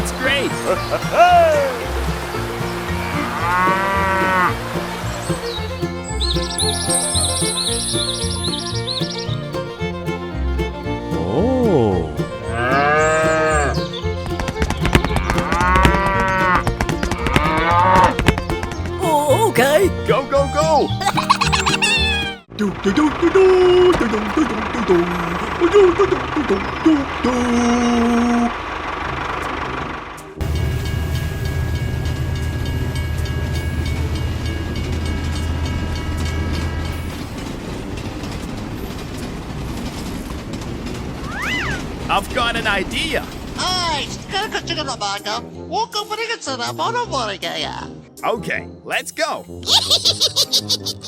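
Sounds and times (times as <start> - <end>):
cow mooing: 3.0 - 4.6, 12.5 - 13.8, 17.2 - 18.1.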